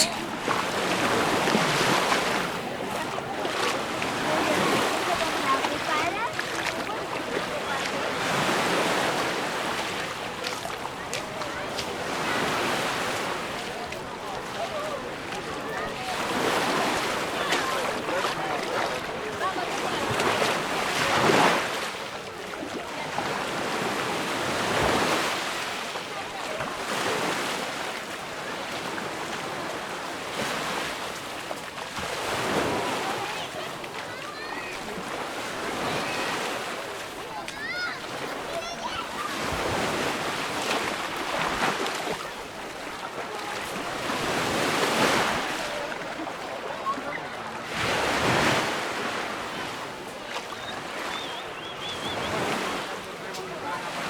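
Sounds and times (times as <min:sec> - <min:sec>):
waves breaking on a beach: 0:00.0 - 0:54.0.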